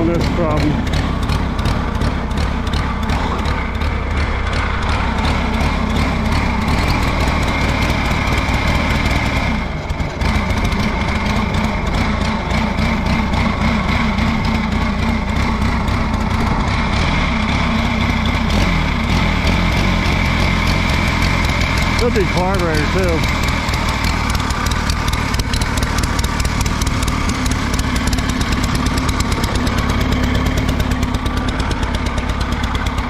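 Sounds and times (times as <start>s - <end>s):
tractor engine misfiring: 0.0s - 33.0s.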